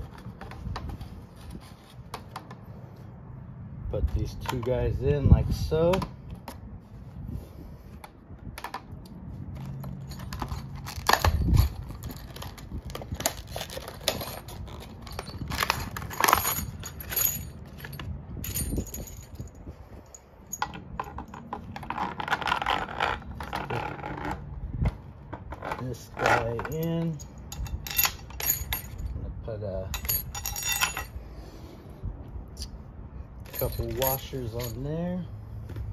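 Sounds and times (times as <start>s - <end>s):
metal hardware clinking: 9.6s - 21.5s, 25.9s - 29.2s, 29.9s - 31.2s, 33.4s - 35.0s.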